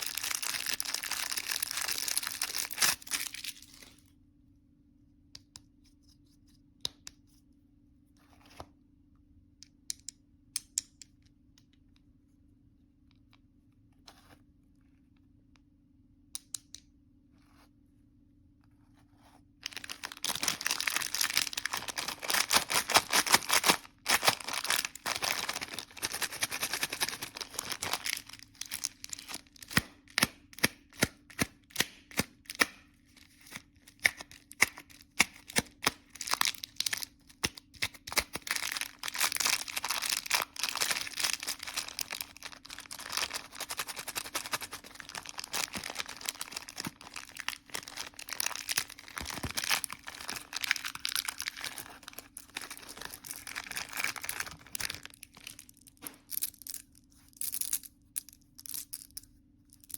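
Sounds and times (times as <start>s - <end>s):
candy wrapper crinkling: 0.0s - 4.0s, 19.6s - 59.2s.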